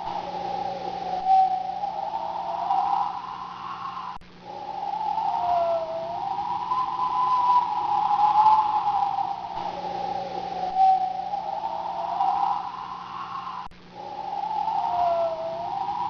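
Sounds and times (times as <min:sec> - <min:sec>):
storm wind whistling: 0:00.0 - 0:16.0.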